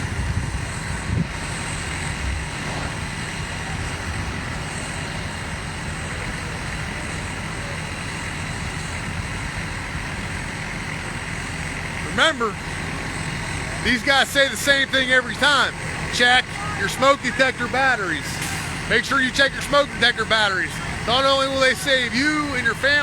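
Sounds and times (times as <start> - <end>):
constant hum: 0.0 - 23.0
fire truck engines rumbling: 0.0 - 23.0.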